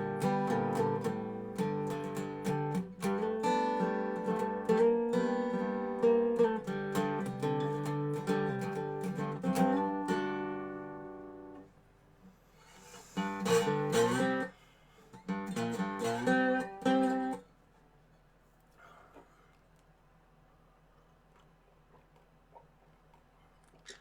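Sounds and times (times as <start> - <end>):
resonator guitar playing blues: 0.0 - 11.7, 13.2 - 14.5, 15.1 - 17.5.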